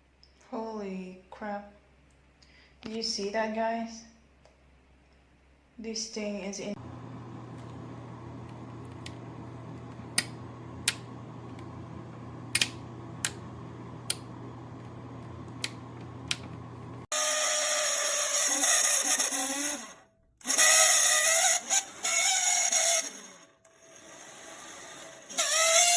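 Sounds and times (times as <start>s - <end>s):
hair dryer running: 6.8s - 17.2s.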